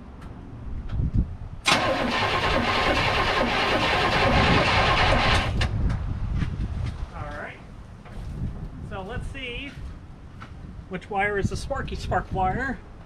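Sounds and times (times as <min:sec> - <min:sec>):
starter motor cranking engine: 0:01.7 - 0:05.7.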